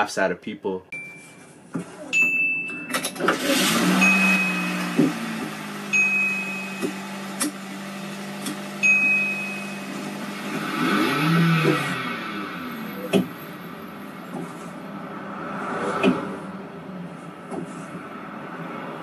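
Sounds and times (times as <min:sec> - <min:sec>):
car engine idling and revving: 0:02.2 - 0:19.0
short high beeps: 0:03.8 - 0:05.0, 0:05.9 - 0:07.1, 0:08.8 - 0:10.1.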